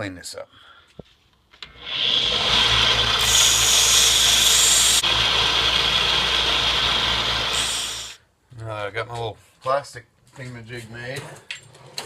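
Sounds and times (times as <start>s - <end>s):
power tool motor running: 1.6s - 8.2s
plastic being sanded: 2.0s - 8.2s.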